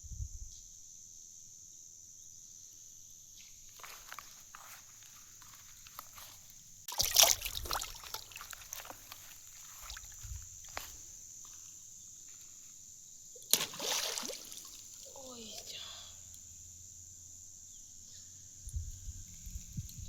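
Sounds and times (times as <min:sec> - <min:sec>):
water splashing in a canal: 0:06.9 - 0:10.1, 0:13.4 - 0:15.3
water trickling and dripping: 0:06.9 - 0:10.2.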